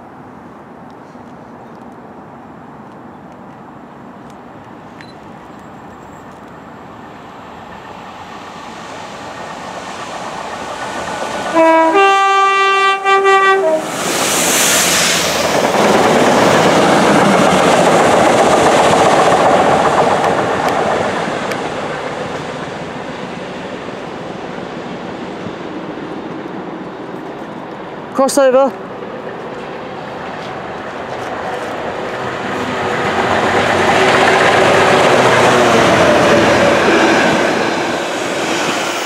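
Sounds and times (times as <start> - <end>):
train rumbling and clattering past: 5.3 - 39.0
two-tone train horn: 11.5 - 14.0.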